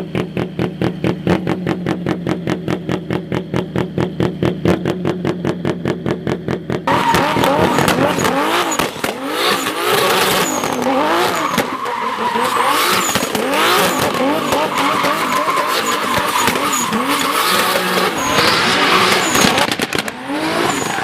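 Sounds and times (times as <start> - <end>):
car engine revving: 0.0 - 21.0
tyres squealing: 6.9 - 19.6.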